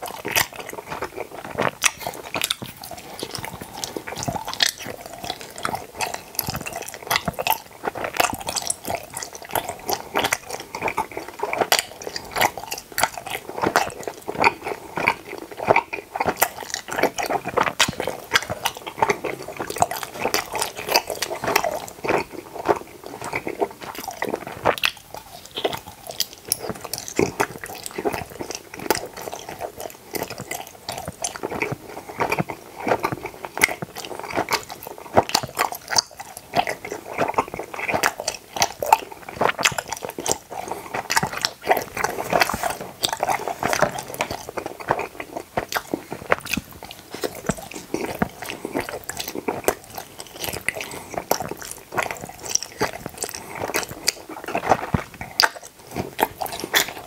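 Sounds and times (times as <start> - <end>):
chewing gummy candy: 0.0 - 57.0.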